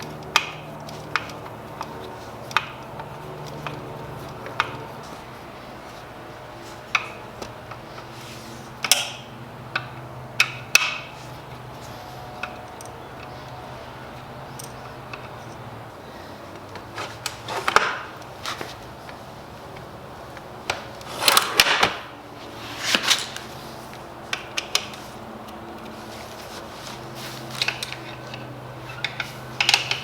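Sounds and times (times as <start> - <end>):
metallic clicks and knocks: 27.6 - 30.0.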